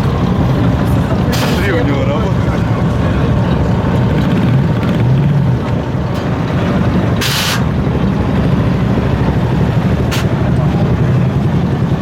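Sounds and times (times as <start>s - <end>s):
car engine exhaust rumble: 0.0s - 12.0s
short hiss: 7.2s - 7.6s.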